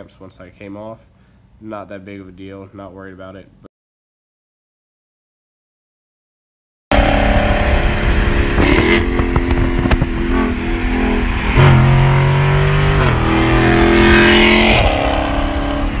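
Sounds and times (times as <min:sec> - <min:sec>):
car engine revving loudly: 0:06.9 - 0:16.0.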